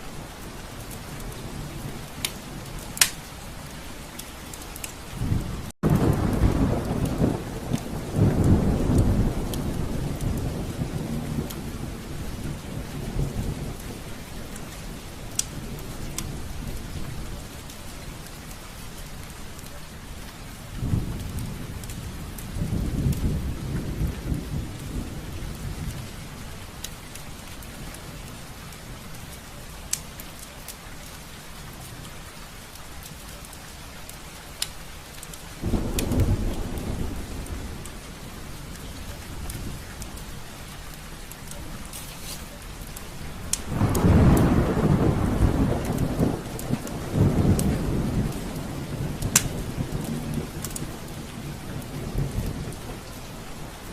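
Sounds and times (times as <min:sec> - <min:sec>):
rain pattering on a window: 0:00.0 - 0:53.9
thunder rolling: 0:05.2 - 0:14.0, 0:35.6 - 0:40.2, 0:43.3 - 0:53.9.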